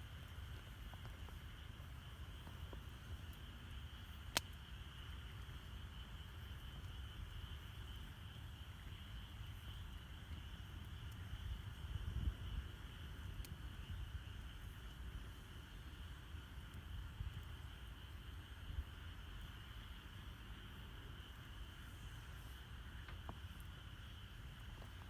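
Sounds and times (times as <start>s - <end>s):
campfire crackling: 0.0s - 25.0s
night insects chirring: 0.0s - 25.0s
wood fire popping: 0.0s - 25.0s.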